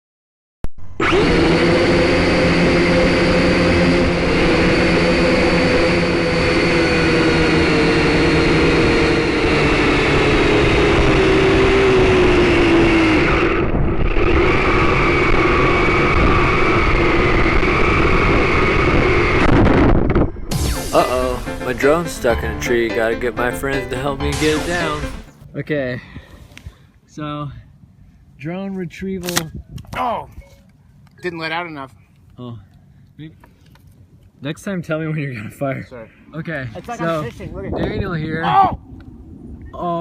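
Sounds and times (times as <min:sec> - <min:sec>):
drone motors whining: 0:00.8 - 0:13.7.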